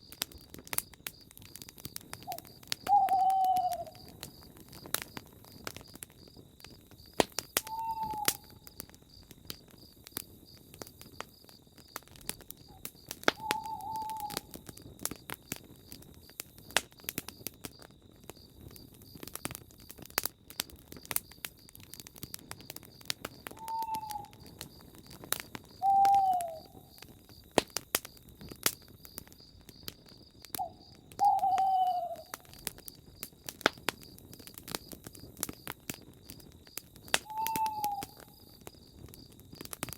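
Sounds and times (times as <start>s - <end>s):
campfire crackling: 0.0s - 39.9s
owl hooting: 2.3s - 4.1s, 7.6s - 8.6s, 13.4s - 14.5s, 23.5s - 24.3s, 25.8s - 26.8s, 30.6s - 32.5s, 37.2s - 38.4s.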